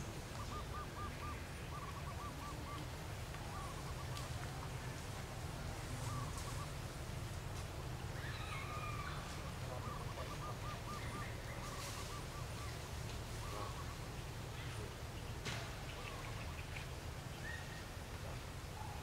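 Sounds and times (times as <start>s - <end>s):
birds warbling trill: 8.0s - 19.0s.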